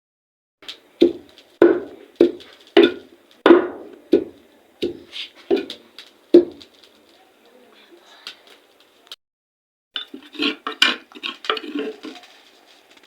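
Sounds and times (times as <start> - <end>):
knocks on wood: 1.0 - 5.8, 6.4 - 6.7.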